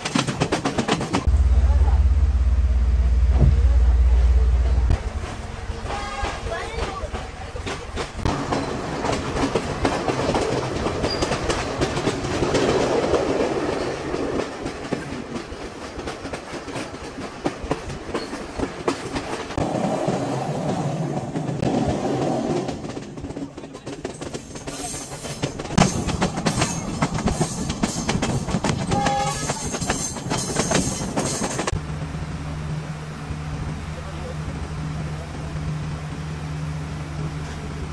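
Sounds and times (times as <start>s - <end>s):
train wheels clattering on rails: 0.0s - 1.3s, 4.6s - 31.8s.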